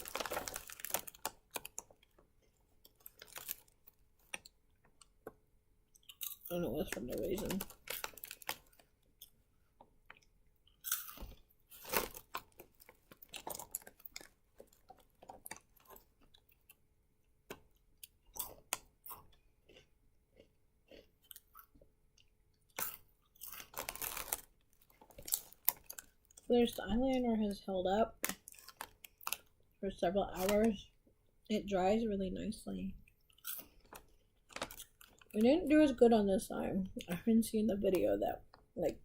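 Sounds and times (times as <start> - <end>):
chewing crunchy snack: 0.0 - 5.2, 5.9 - 9.4, 10.0 - 16.8, 17.4 - 26.5, 28.2 - 29.8, 33.0 - 35.4.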